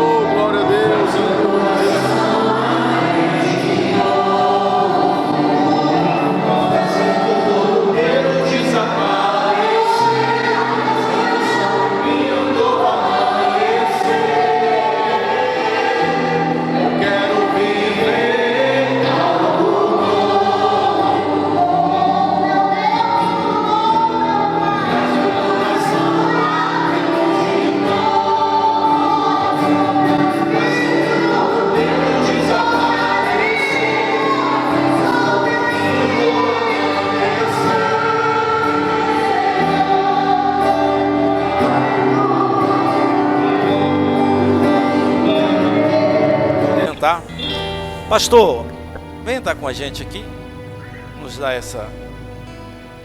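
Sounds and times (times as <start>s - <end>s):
choir singing gospel: 0.0s - 53.0s
sustained instrumental accompaniment: 23.4s - 53.0s.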